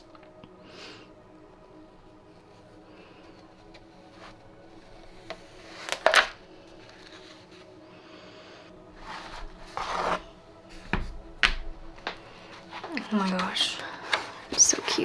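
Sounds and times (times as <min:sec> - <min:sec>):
stamp rubbing and scraping on paper: 0:09.0 - 0:10.3.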